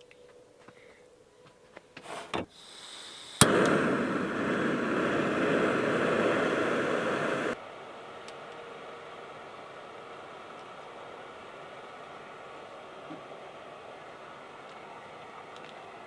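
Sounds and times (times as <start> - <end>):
gas burner hissing: 2.1 - 7.6
stove igniter click: 3.4 - 7.6.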